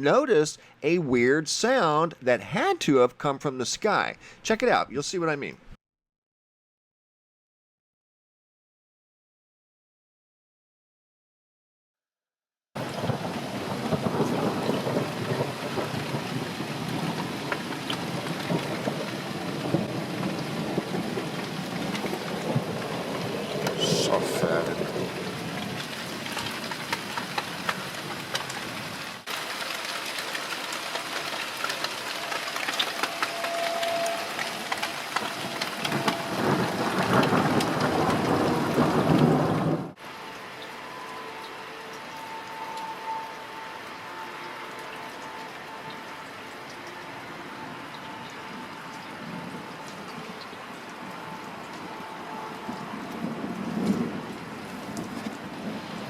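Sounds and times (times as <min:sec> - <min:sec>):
thunder rumbling: 0:12.8 - 0:29.0, 0:31.1 - 0:40.0, 0:52.6 - 0:56.0
heavy rain pattering: 0:12.8 - 0:56.0
faint high tone: 0:33.0 - 0:34.7.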